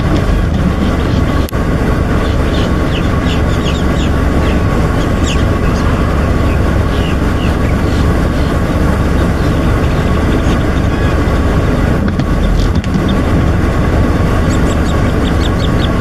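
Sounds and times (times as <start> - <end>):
loud low rumbling: 0.0 - 16.0
bird chirps and calls: 2.2 - 8.6, 14.4 - 16.0.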